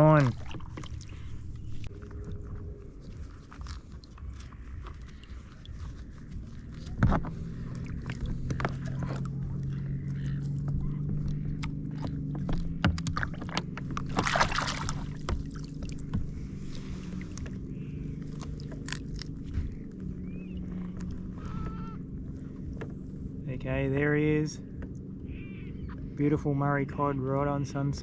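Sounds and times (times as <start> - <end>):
water sloshing: 0.0 - 23.4
steady low drone: 0.0 - 28.0
knocks and clicks on a kayak: 6.3 - 17.6
water splash: 13.0 - 16.0.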